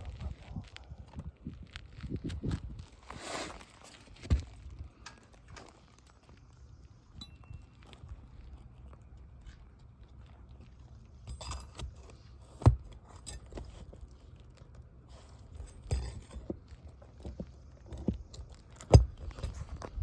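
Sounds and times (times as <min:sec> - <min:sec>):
knocks and scrapes on shingle roof: 0:02.6 - 0:05.9, 0:10.6 - 0:20.0.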